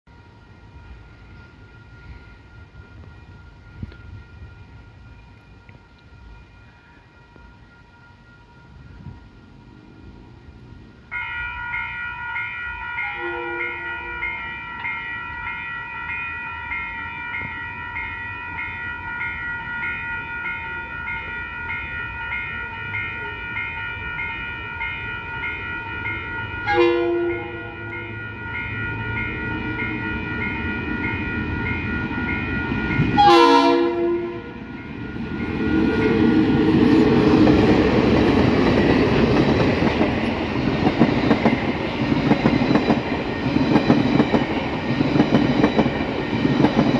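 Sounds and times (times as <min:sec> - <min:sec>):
train rumble and wheel noise: 0:00.1 - 0:46.9
level crossing bells ringing: 0:11.1 - 0:46.9
locomotive horn blast: 0:26.6 - 0:28.0, 0:33.2 - 0:34.6.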